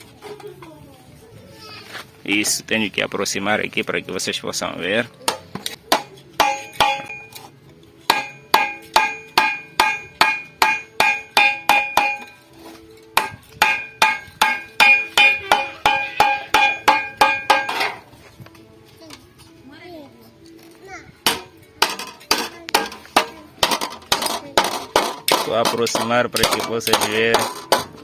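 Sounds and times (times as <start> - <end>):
hammering on sheet metal: 5.3 - 7.3, 8.1 - 12.4, 13.2 - 18.0, 21.3 - 28.0.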